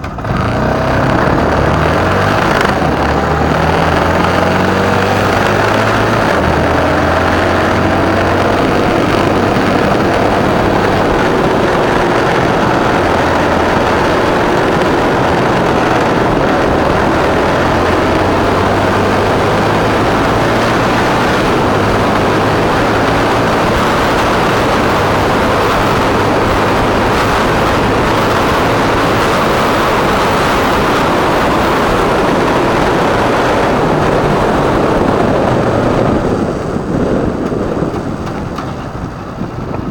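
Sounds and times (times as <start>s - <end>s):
motorcycle engine running: 0.0s - 39.9s
wind and road rush: 0.0s - 39.9s.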